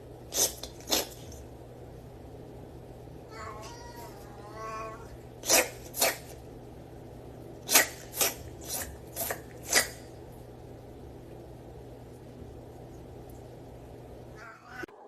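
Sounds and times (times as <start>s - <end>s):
cat meowing: 3.3s - 5.2s, 14.4s - 15.0s.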